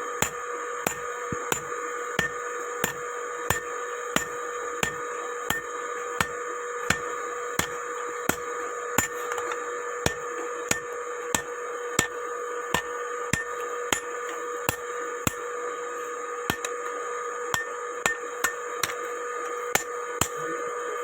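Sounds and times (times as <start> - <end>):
steady hum: 0.0 - 21.0
hammer striking metal: 0.2 - 15.4, 16.5 - 16.8, 17.5 - 19.0.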